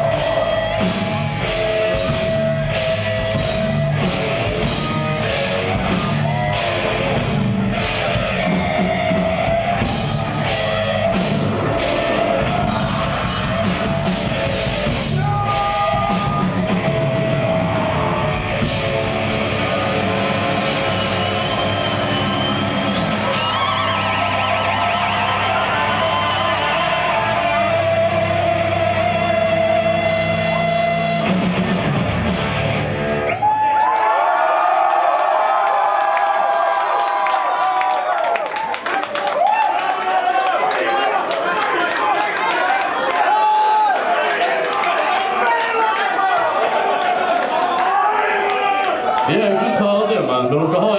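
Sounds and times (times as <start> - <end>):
death metal band playing live: 0.0 - 33.6.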